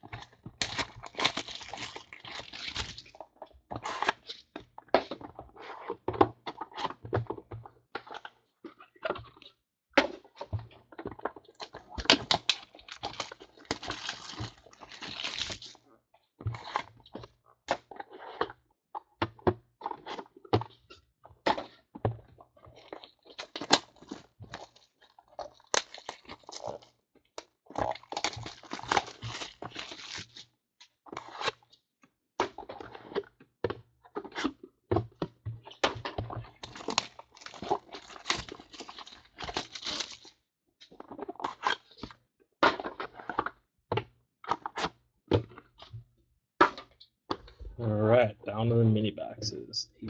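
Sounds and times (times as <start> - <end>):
plastic wrap crinkling and tearing: 0.6 - 3.2, 12.0 - 15.8, 23.4 - 26.9, 27.7 - 30.4, 36.6 - 40.4.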